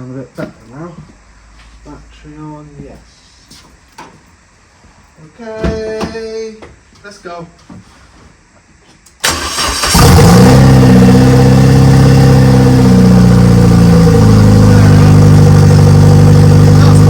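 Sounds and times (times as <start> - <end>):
engine starter cranking: 9.2 - 10.6
car engine running at fast idle: 9.3 - 17.0.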